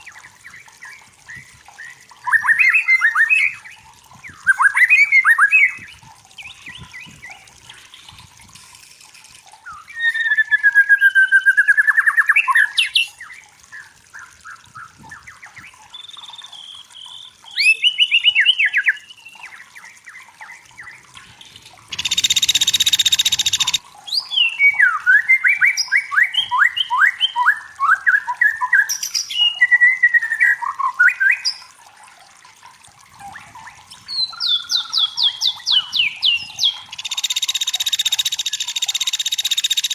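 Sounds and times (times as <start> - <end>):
songbird trills and whistles: 9.7 - 21.0, 21.9 - 31.6, 33.3 - 39.9.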